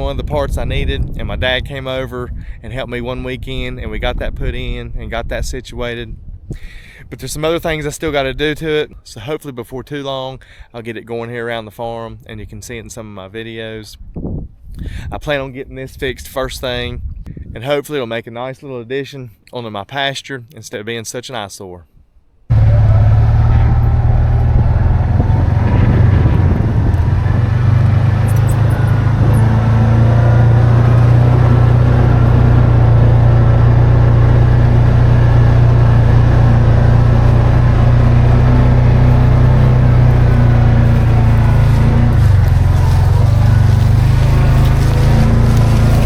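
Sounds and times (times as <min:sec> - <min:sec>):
engine running steadily: 0:22.5 - 0:46.0.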